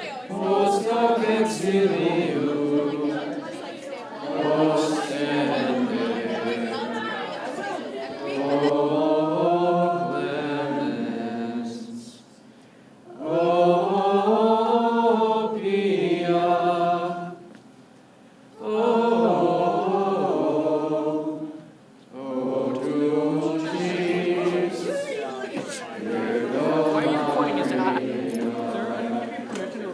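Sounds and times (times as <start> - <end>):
voices singing held phrases: 0.0 - 12.3, 18.6 - 29.9.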